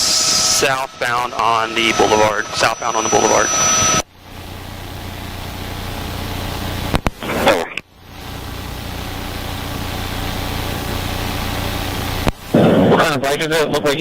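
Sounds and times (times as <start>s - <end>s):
helicopter engine and rotor drone: 0.0s - 12.3s
radio voice: 0.6s - 4.0s, 7.2s - 7.9s
radio clicks: 6.9s - 7.2s.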